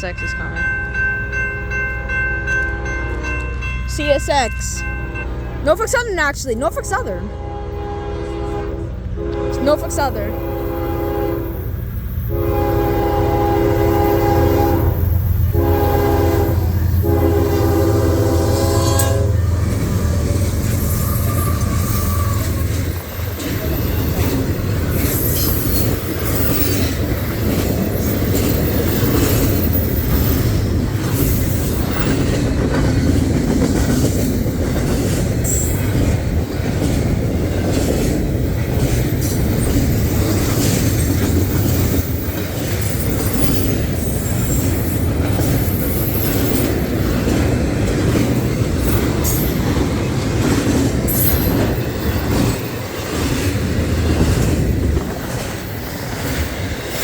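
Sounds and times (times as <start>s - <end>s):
train rolling past: 0.0s - 57.0s
wheels clacking over rail joints: 18.3s - 57.0s
high-pitched wheel squeals: 20.8s - 23.0s.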